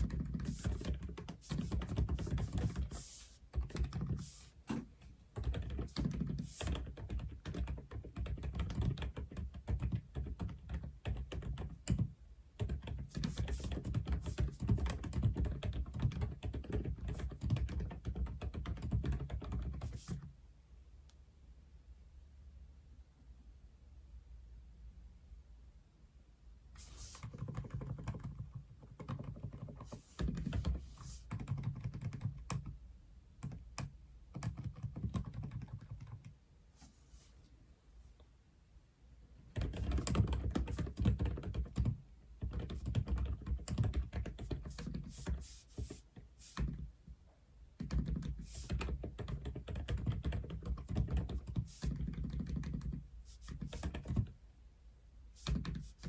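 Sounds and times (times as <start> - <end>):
typing on mechanical keyboard: 0.0 - 4.4, 5.4 - 20.2, 27.2 - 32.7, 33.4 - 36.3, 39.6 - 46.0, 47.8 - 54.3.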